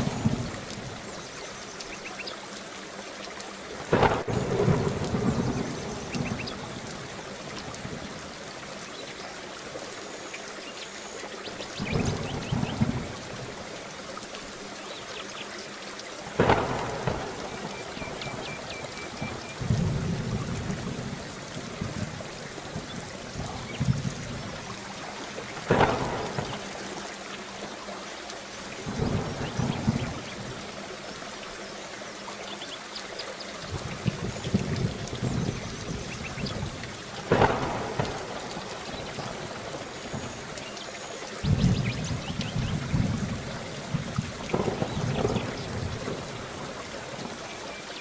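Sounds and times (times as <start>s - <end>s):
thunderclaps rolling: 0.0s - 1.1s, 3.8s - 8.2s, 11.8s - 13.6s, 16.4s - 27.0s, 28.8s - 30.6s, 33.7s - 40.4s, 41.4s - 47.3s
heavy rain hissing: 0.0s - 48.0s.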